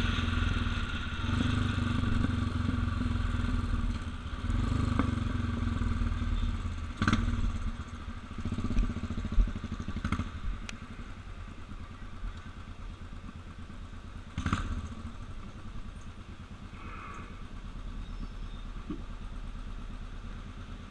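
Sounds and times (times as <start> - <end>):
motorcycle engine idling low: 0.0 - 20.9.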